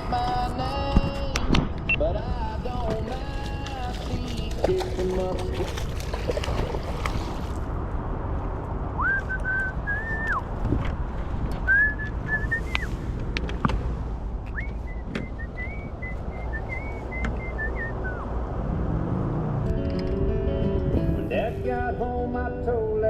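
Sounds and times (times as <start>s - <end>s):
whistled tune: 9.0s - 10.4s, 11.7s - 12.9s, 14.5s - 18.3s.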